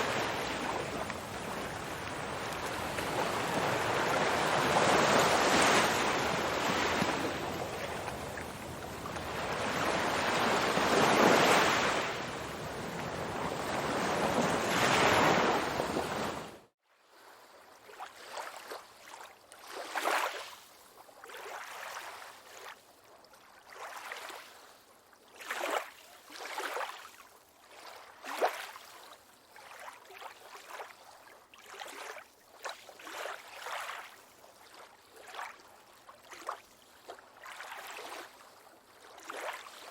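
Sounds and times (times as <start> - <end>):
water lapping: 0.0 - 16.6
ocean surf: 0.0 - 16.7.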